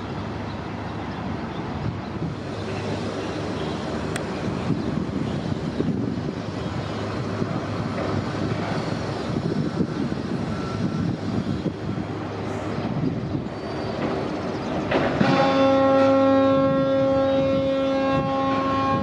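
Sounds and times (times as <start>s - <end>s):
bus engine hum: 0.0s - 15.2s
road noise: 0.0s - 19.0s.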